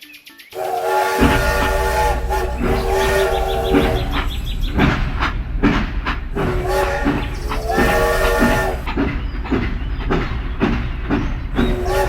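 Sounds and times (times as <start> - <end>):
train horn: 0.6 - 5.2, 6.3 - 9.1, 11.6 - 12.0
train clacking: 0.6 - 12.0.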